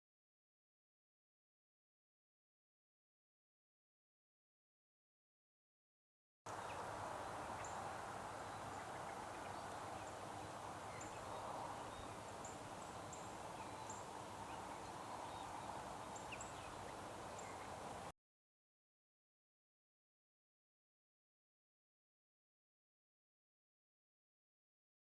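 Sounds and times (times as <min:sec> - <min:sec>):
small bird chirping: 0:06.6 - 0:18.0.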